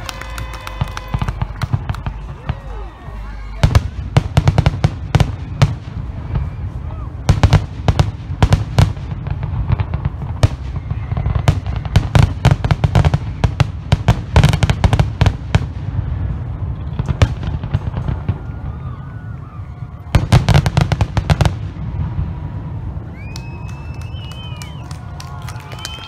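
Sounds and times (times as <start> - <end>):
fireworks bangs and crackles: 0.0 - 26.0
low rumble: 15.1 - 25.2.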